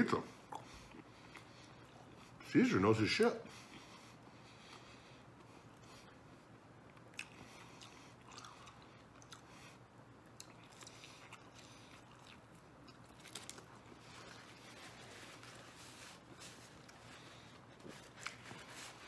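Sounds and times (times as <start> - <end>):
chewing and biting pizza: 0.4 - 2.4, 6.8 - 19.0
paper napkin rustling: 13.3 - 19.0.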